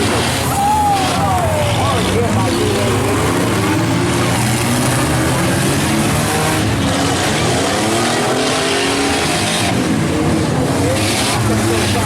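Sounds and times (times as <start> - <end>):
truck engines revving: 0.0 - 12.0.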